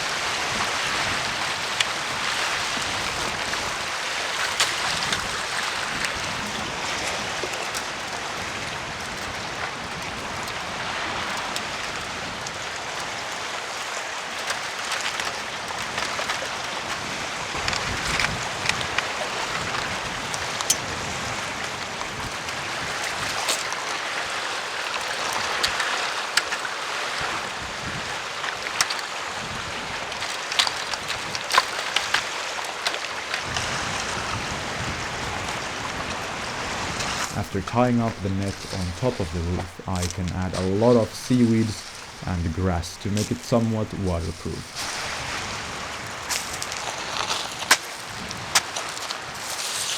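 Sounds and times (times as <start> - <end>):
wind on shore: 0.0 - 49.9
sea waves rushing: 17.1 - 46.8.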